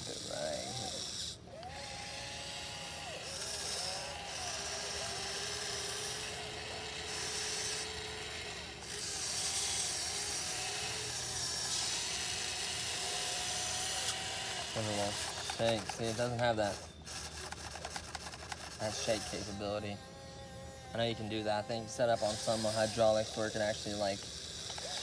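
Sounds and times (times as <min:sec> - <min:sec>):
electric motors whining: 0:00.0 - 0:25.0.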